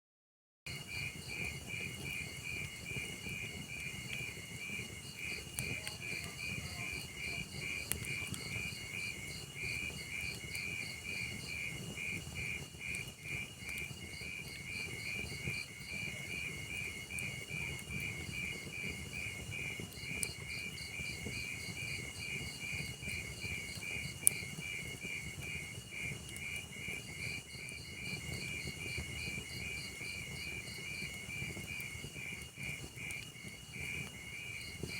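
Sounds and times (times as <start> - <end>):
crickets chirping: 0.7 - 34.9
wood fire burning: 0.7 - 34.9
logs crackling and popping: 0.8 - 34.9.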